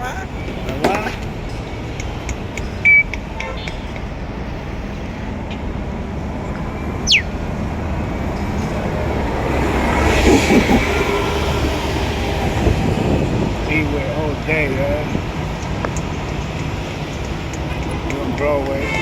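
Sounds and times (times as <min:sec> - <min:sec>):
low rumble of city street: 0:00.0 - 0:19.0
quick falling whistle: 0:07.0 - 0:07.4
short high chirp: 0:07.0 - 0:07.4.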